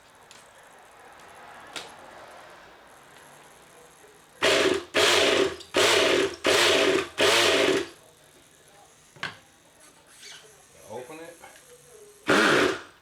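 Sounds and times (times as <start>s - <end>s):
electric starter whirring: 4.4s - 8.0s, 12.2s - 13.0s.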